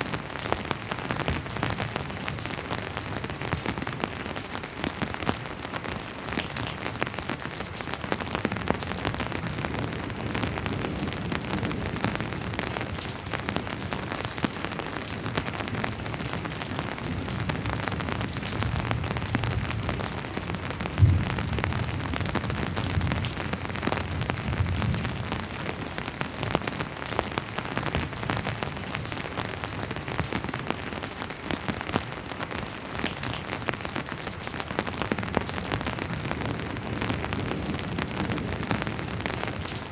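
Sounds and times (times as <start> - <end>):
steady rain falling: 0.0 - 39.9
distant thunder rumble: 18.6 - 25.2.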